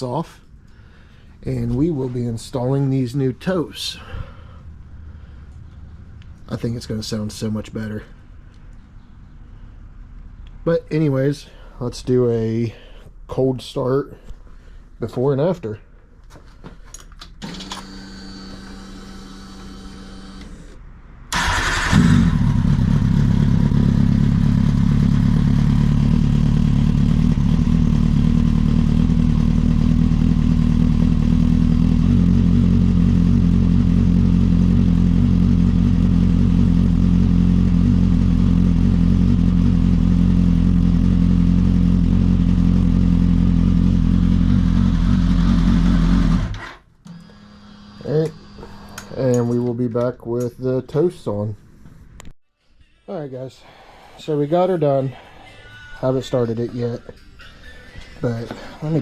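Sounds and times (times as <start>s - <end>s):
motorcycle engine idling: 21.4s - 46.2s.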